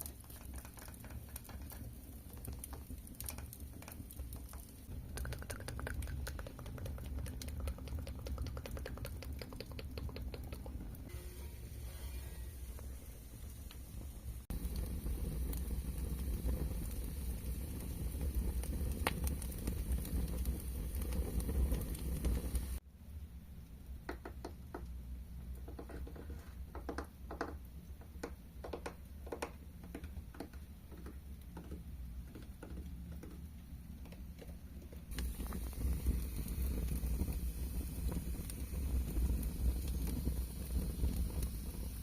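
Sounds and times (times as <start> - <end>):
pattering and crackling noise: 0.0 - 11.1, 14.5 - 22.8, 28.2 - 42.0
taps on a hard surface: 2.5 - 10.9, 24.1 - 24.9.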